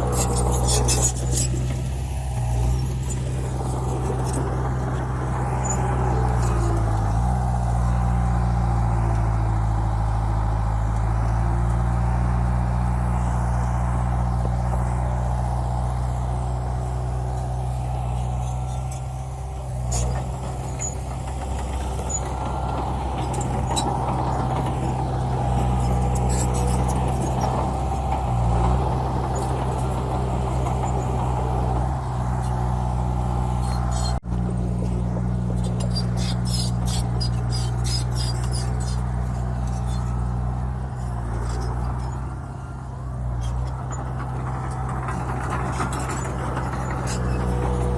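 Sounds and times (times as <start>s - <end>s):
bulldozer diesel engine running: 0.0s - 47.9s.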